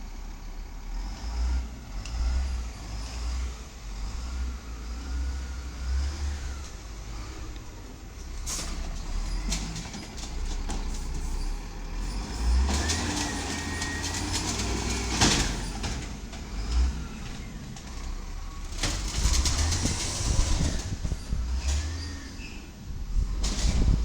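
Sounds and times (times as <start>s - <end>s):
garbage truck engine rumbling: 0.0s - 24.0s
sharp clatter: 18.7s - 21.9s.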